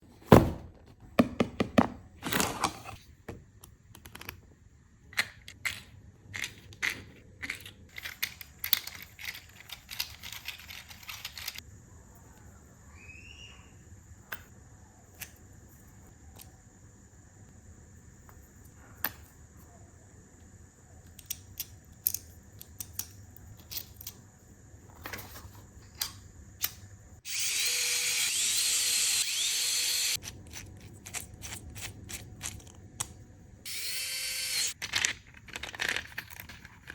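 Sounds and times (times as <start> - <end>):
hard objects clicking and scraping: 5.2 - 11.6, 34.5 - 36.9.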